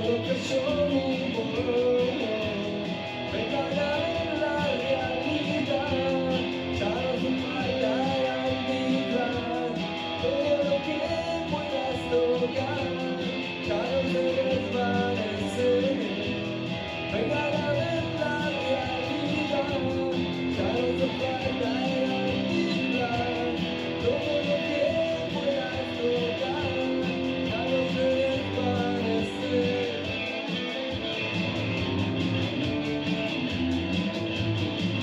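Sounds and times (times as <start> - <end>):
strummed guitars: 0.0 - 35.0.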